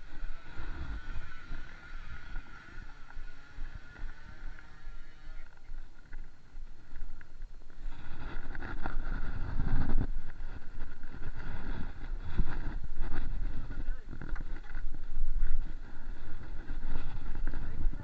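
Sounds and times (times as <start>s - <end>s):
distant dirt bike engines whining: 0.0s - 8.8s.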